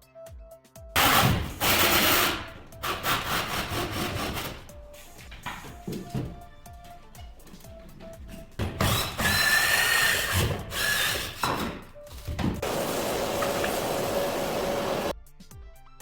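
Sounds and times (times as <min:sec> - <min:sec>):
power drill motor whine: 0:08.8 - 0:11.8, 0:12.6 - 0:15.1.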